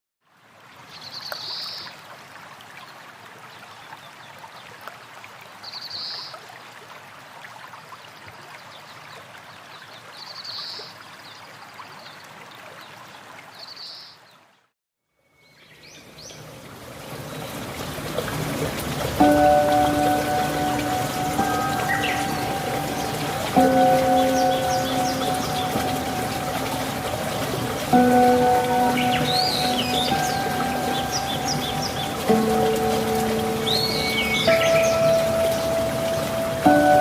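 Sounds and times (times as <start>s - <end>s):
rushing water: 0.2s - 14.6s, 15.7s - 37.0s
high bird chirp: 21.6s - 26.0s, 28.8s - 32.3s, 33.6s - 35.7s.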